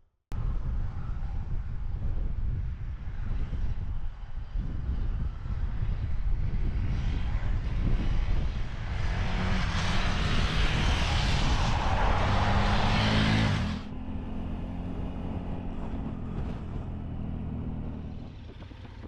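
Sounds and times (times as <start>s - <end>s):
rushing wind: 0.3s - 19.0s
motorcycle engine running: 12.9s - 19.0s.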